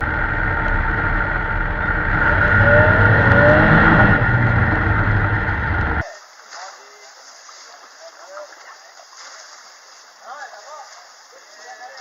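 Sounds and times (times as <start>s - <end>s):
loud motor running: 0.0s - 6.0s.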